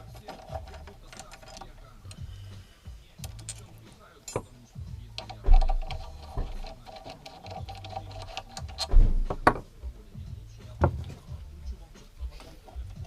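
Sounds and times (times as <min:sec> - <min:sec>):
heavy knocks: 0:08.8 - 0:09.7.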